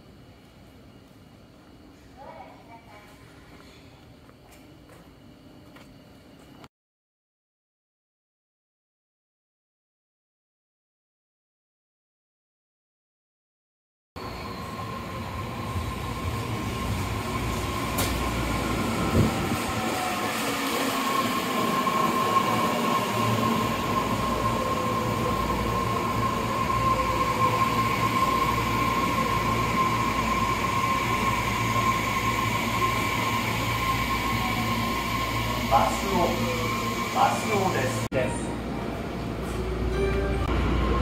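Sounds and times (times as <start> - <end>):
electric train whine: 14.2 - 41.0.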